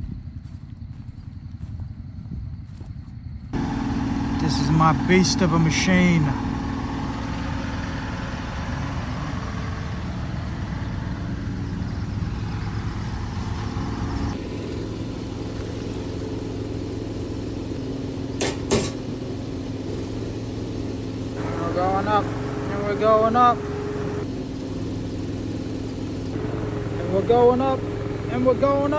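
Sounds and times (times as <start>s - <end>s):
cherry picker engine running: 3.6s - 28.9s
sharp knocks: 18.3s - 19.3s.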